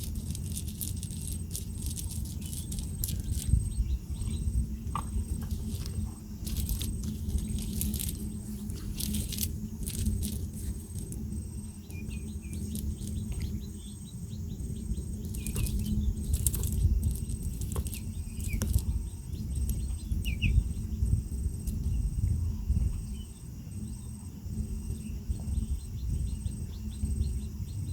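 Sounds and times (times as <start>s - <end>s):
pulsing insect call: 0.0s - 27.9s
bird chirps: 11.7s - 21.1s.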